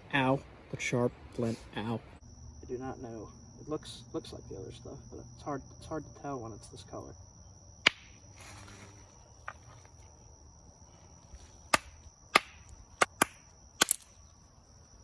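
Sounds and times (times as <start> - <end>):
high insect drone: 0.0 - 15.0
stones clicking together: 13.0 - 14.1.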